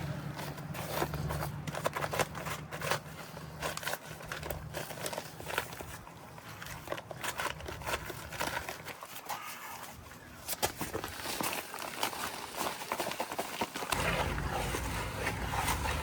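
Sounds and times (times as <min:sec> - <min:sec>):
concrete scraping by hand: 0:00.0 - 0:05.7, 0:11.0 - 0:16.0.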